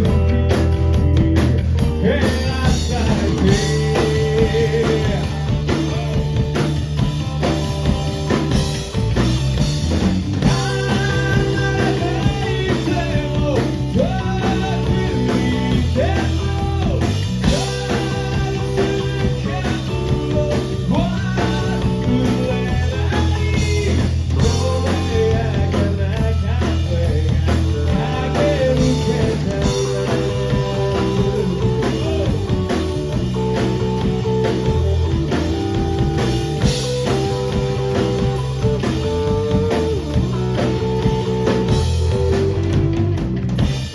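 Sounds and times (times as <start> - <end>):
bass: 0.0 - 43.9
drums: 0.0 - 43.9
electric guitar: 0.0 - 43.9.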